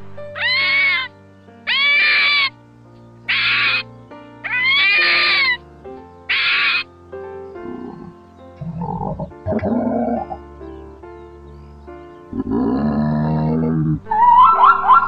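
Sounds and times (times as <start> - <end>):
background music: 0.0 - 15.0
high animal cries: 0.4 - 2.6, 3.3 - 5.6, 6.3 - 7.0, 7.6 - 10.4, 12.3 - 15.0.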